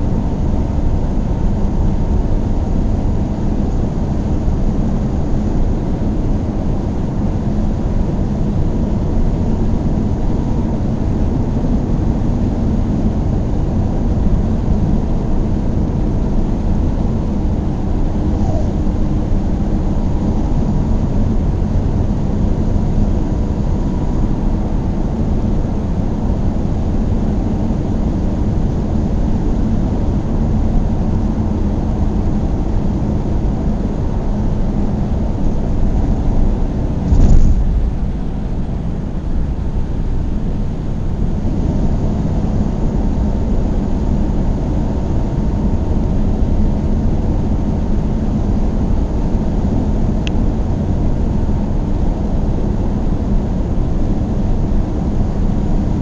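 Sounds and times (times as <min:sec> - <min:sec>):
car engine and road noise: 0:00.0 - 0:54.2
loud thump: 0:37.0 - 0:39.4.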